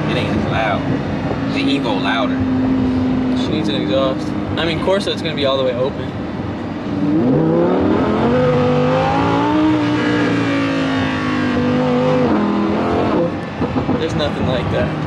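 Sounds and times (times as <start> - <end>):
car engine accelerating hard: 6.8 - 15.0.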